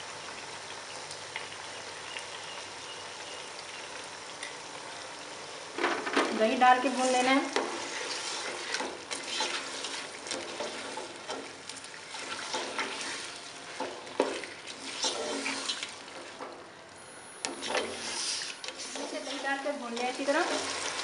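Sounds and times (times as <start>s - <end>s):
chicken sizzling in hot oil: 0.0s - 16.4s, 17.0s - 21.0s
spatula scraping pot: 6.9s - 16.0s, 17.5s - 20.3s.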